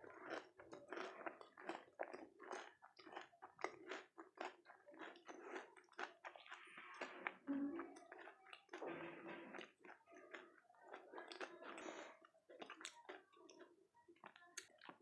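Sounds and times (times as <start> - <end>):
crisp shells crunching while chewed: 0.0 - 11.8.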